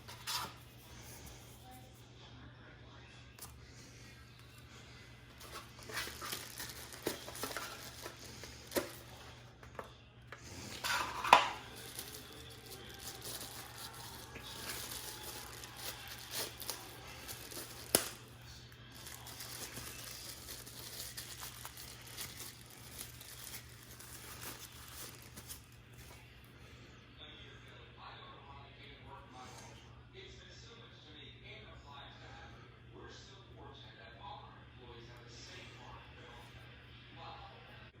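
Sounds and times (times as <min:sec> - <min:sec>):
plastic and paper crinkling: 0:00.0 - 0:01.7, 0:05.3 - 0:26.3.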